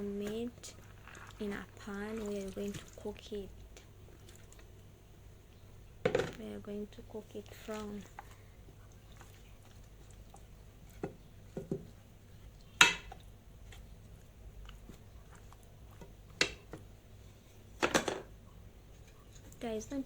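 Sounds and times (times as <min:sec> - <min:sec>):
meat pieces knocking into pan: 0:12.8 - 0:13.2.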